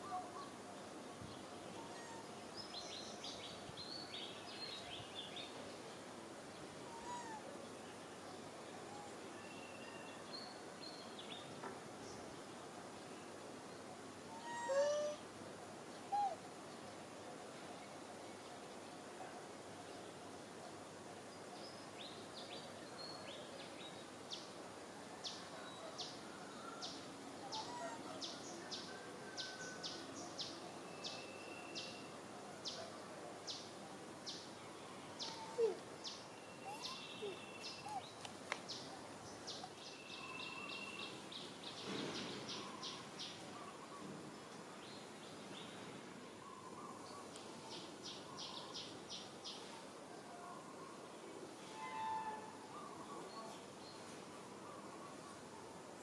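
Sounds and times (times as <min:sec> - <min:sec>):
bird chirping: 0:35.2 - 0:44.1.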